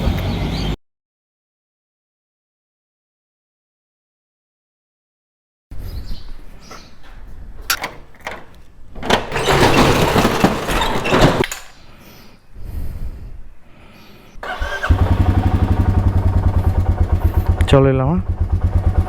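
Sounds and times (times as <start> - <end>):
motorcycle engine starting and idling: 14.4 - 19.0.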